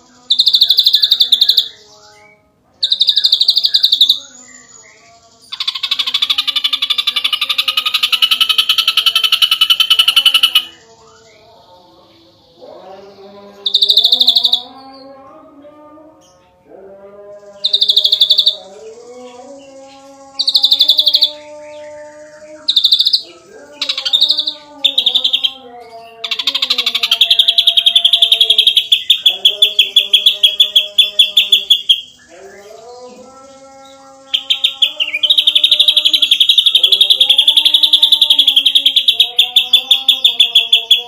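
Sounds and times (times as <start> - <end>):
bird rapid chattering notes: 5.6 - 10.8, 22.7 - 25.6, 26.3 - 32.3, 34.4 - 41.0.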